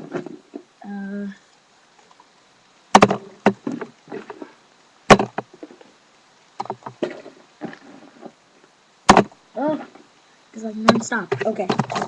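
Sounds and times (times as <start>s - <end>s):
packs knocking on hard surface: 3.0s - 3.7s.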